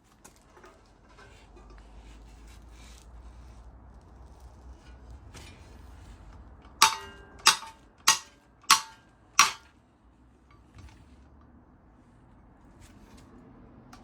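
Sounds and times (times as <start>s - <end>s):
sharp metallic strikes: 6.8s - 9.7s.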